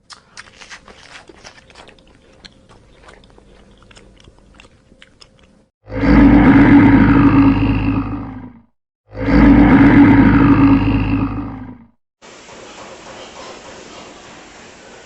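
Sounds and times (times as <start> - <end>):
faint chewing and crunching: 0.0 - 5.7
deep animal roar: 5.8 - 12.0.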